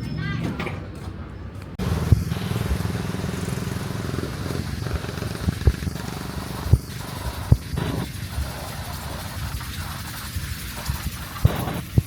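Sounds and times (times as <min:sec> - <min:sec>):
boat engine running: 0:01.8 - 0:08.1.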